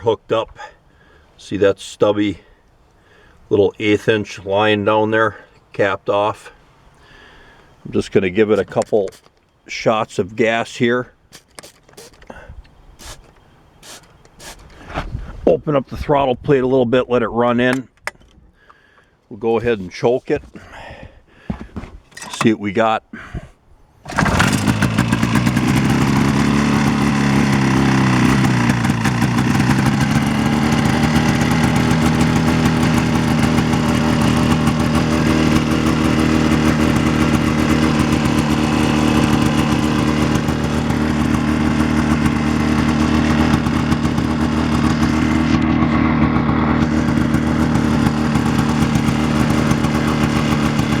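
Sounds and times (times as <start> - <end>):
snowmobile engine revving and idling: 24.1 - 51.0.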